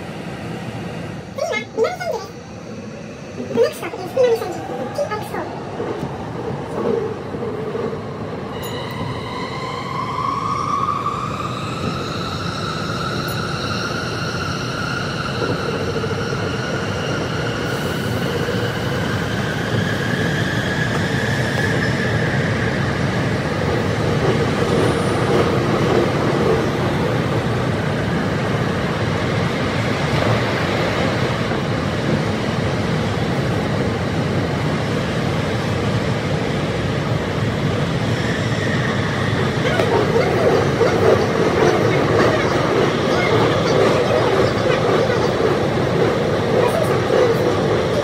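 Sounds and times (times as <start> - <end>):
train wheels rumbling: 37.2 - 48.0.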